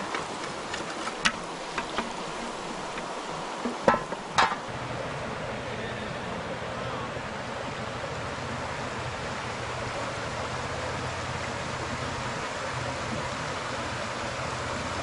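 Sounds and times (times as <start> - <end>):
river rushing: 0.0 - 15.0
sharp knocks: 1.2 - 4.7.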